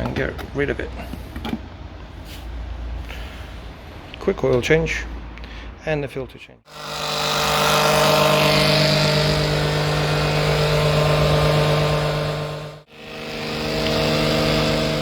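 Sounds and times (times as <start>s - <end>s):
pump motor humming: 6.7s - 15.0s.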